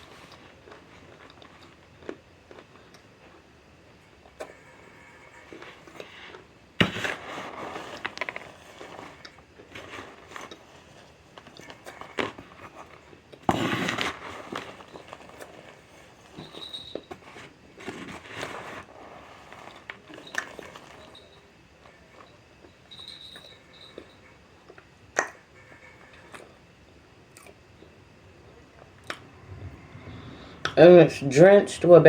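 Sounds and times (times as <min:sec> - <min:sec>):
soft chewing with clicks: 0:00.2 - 0:06.5, 0:27.3 - 0:28.0.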